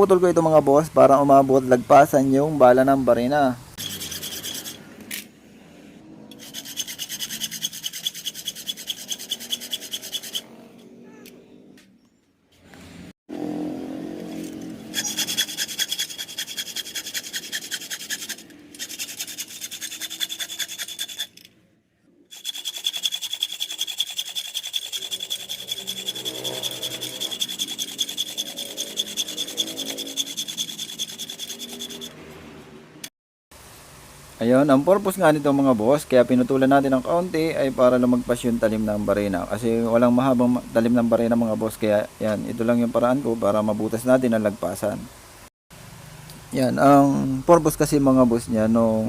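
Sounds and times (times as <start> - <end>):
saw cutting metal pipe: 3.8 - 4.9, 6.3 - 10.5, 14.2 - 21.4, 22.3 - 32.2.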